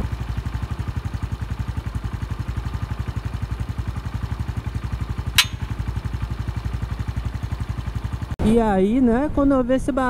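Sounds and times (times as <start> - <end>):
motorcycle engine idling: 0.0 - 8.4
sharp metallic snap: 5.3 - 5.8.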